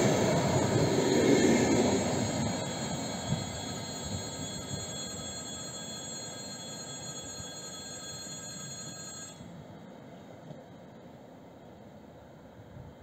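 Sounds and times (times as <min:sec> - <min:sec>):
high ringing tones: 0:00.0 - 0:09.6
electric train rumbling: 0:00.0 - 0:13.0.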